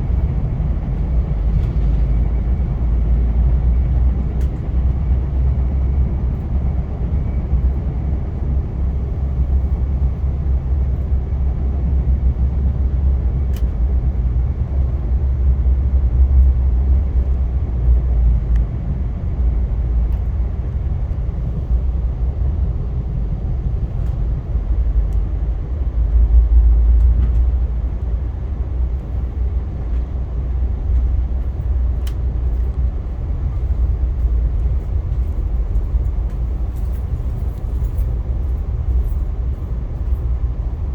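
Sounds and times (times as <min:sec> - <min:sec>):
train rumbling in motion: 0:00.0 - 0:40.9.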